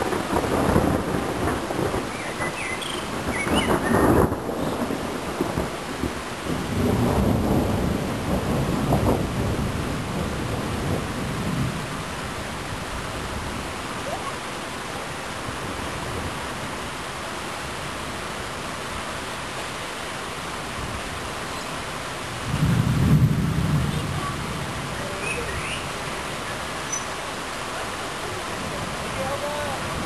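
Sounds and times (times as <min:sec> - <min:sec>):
rolling thunder: 0:00.0 - 0:13.6, 0:22.3 - 0:26.0
steady rain: 0:00.0 - 0:30.0.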